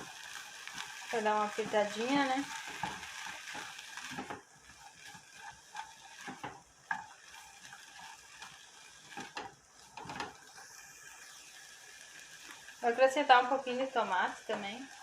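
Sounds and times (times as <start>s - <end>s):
meat sizzling in a pan: 0.0s - 15.0s
spoon scraping a pan: 0.3s - 11.3s.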